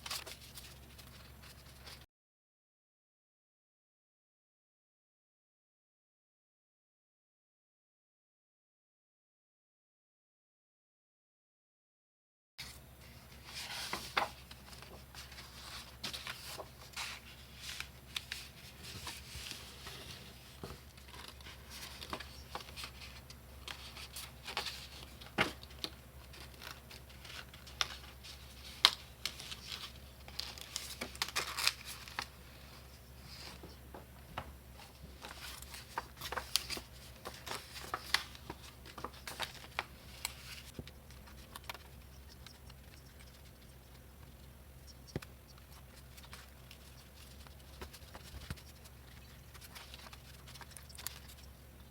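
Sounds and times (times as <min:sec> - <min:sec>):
paper rustling and crinkling: 0:00.0 - 0:02.0, 0:12.6 - 0:44.5, 0:45.1 - 0:51.9.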